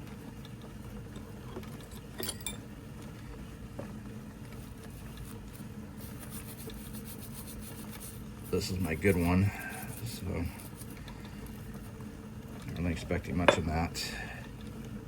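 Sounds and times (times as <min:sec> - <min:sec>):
small metal parts clinking: 0:01.8 - 0:02.6
steady low hum: 0:03.2 - 0:15.0.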